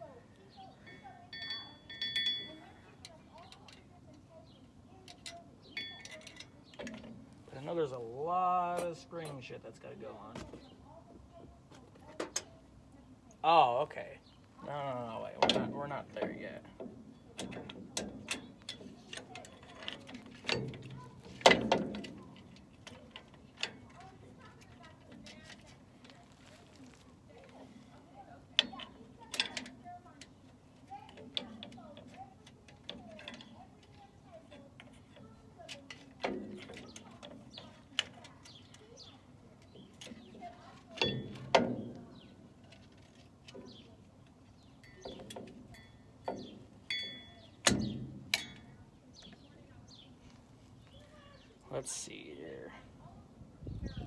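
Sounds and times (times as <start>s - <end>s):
ringing metal clanks: 0.8s - 3.8s, 5.1s - 7.1s, 40.9s - 42.3s, 44.6s - 48.8s
metal tools clicking and clanking: 0.8s - 8.0s, 8.7s - 9.6s, 15.3s - 26.4s, 27.3s - 49.4s
metal springs clicking and clanking: 5.1s - 7.2s, 15.4s - 25.8s, 40.8s - 48.8s.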